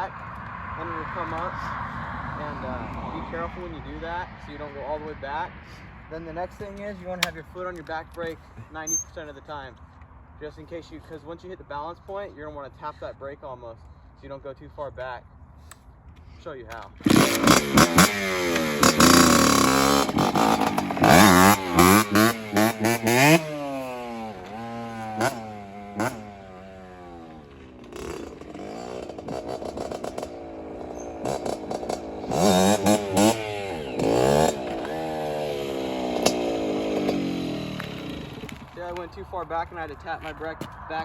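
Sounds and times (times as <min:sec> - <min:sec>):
dirt bike engine revving: 0:00.7 - 0:04.7, 0:17.0 - 0:38.9.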